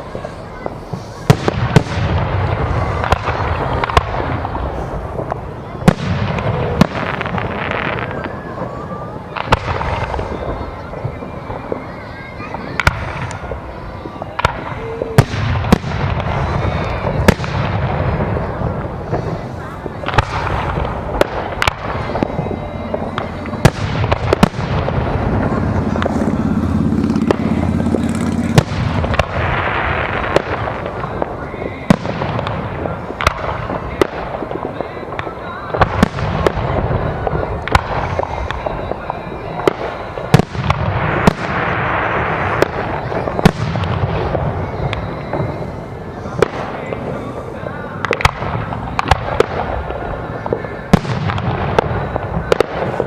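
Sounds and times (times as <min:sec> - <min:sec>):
fireworks bangs: 0:00.0 - 0:53.0
fireworks crackling: 0:00.0 - 0:53.0.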